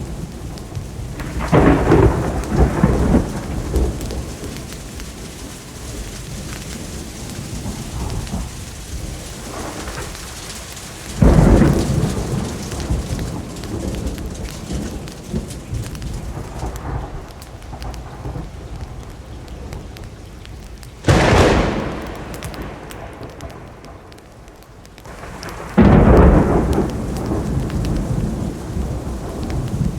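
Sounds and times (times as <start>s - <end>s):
steady rain: 0.0s - 29.9s
thunder claps: 0.0s - 29.9s.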